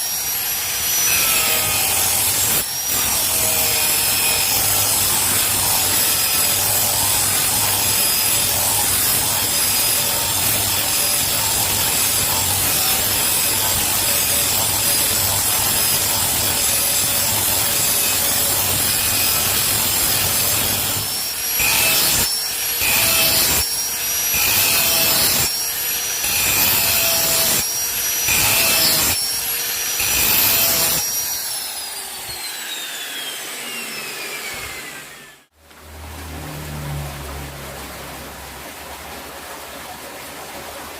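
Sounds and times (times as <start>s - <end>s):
electric grinder grinding steel: 0.0s - 35.5s
grinder motor spinning down: 28.3s - 35.5s.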